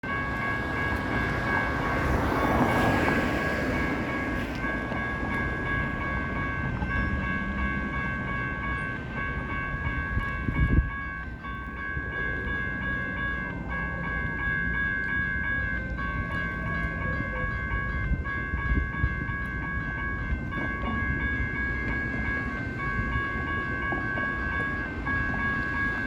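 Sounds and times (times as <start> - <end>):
train rumbling past: 0.0 - 26.0.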